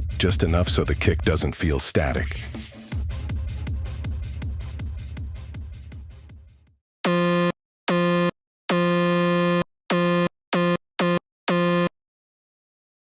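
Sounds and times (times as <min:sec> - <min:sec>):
synthesized kick drum: 0:00.0 - 0:01.4, 0:02.3 - 0:07.3
buzzy synth tone: 0:07.1 - 0:11.9.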